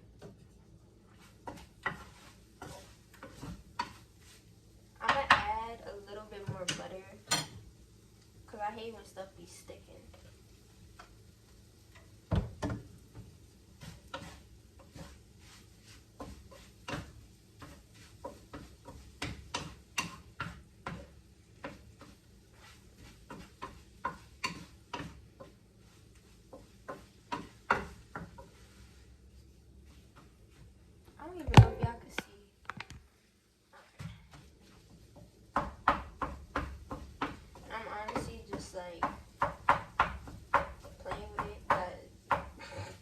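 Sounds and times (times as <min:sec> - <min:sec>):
spatula scraping frying pan: 0:01.0 - 0:05.5, 0:13.1 - 0:30.8.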